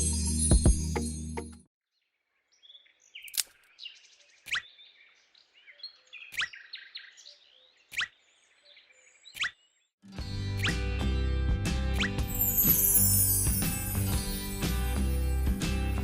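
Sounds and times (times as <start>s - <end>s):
birds twittering: 2.0s - 9.9s.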